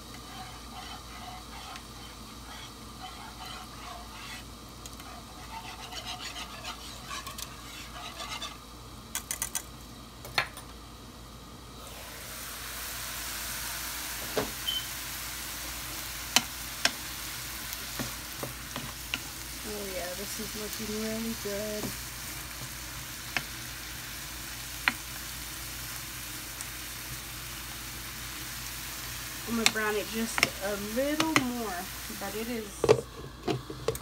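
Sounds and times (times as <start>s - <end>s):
mushrooms sizzling in a pan: 0.0s - 10.1s, 10.9s - 34.0s
utensil clicking against pan: 29.6s - 31.5s.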